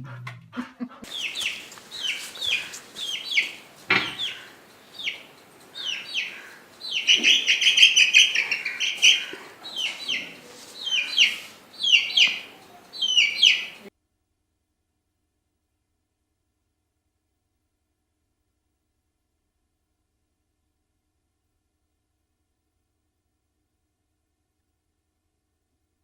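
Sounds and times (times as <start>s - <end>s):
bird calling: 1.0s - 13.9s.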